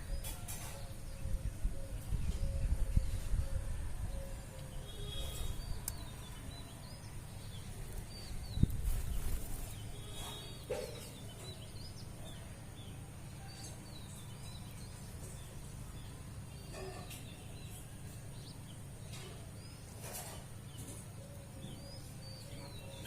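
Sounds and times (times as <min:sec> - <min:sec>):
small birds chirping: 0:00.0 - 0:23.0
low wind rumble: 0:00.9 - 0:09.7.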